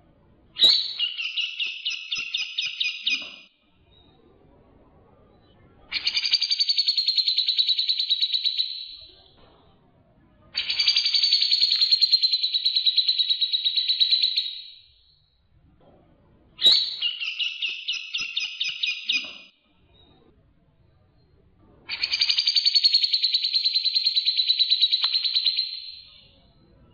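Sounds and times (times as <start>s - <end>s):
songbird trills: 0.6s - 4.1s, 10.6s - 14.8s, 16.6s - 20.1s, 21.9s - 26.4s.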